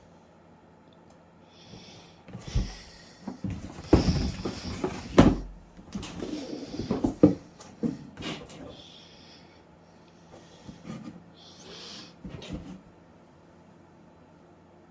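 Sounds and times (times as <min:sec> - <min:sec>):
thumps: 0:03.4 - 0:08.0.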